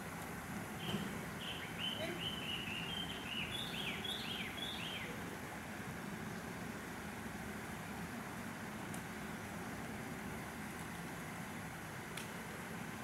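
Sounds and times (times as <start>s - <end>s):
steady background hiss: 0.0s - 13.0s
small bird chirping: 0.8s - 5.1s.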